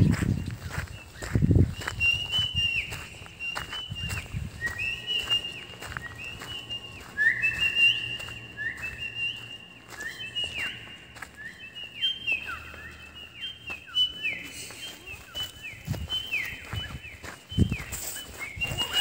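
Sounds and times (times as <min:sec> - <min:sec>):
birds whistling: 0:00.0 - 0:19.0
footsteps on gravel: 0:00.0 - 0:19.0.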